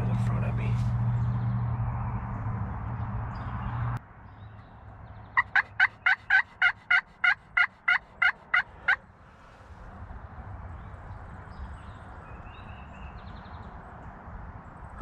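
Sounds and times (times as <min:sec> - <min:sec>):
turkey yelping: 0:05.4 - 0:09.0.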